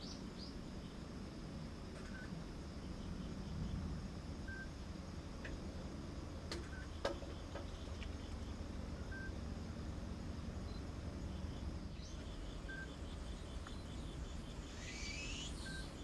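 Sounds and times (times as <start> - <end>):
outdoor background rumble: 0.0 - 16.0
faint high chirps: 4.4 - 4.8, 6.6 - 9.4, 10.6 - 16.0.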